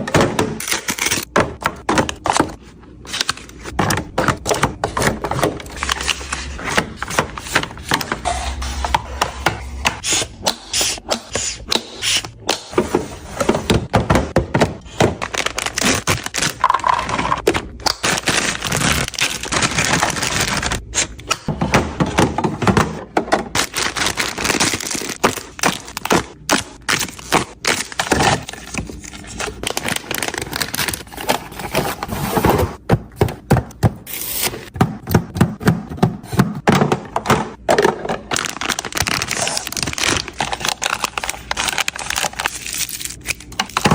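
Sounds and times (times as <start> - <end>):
fridge shelves scraping: 12.7 - 26.2, 26.9 - 34.8
food containers clunking: 21.4 - 26.6, 34.7 - 41.0.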